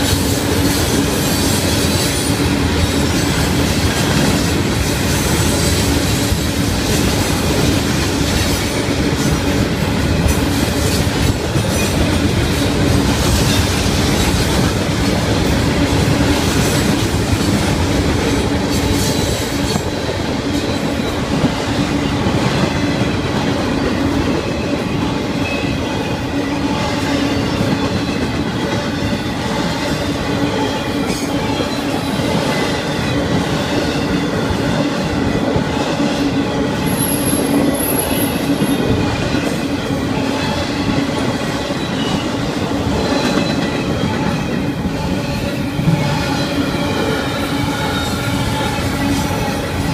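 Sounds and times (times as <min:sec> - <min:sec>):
steel wheels rumbling on rail: 0:00.0 - 0:49.9.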